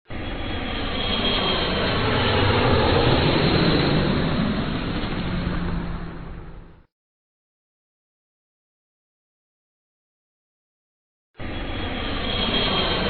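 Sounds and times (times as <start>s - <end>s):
jet aircraft passing by: 0.1s - 6.9s, 11.4s - 13.0s.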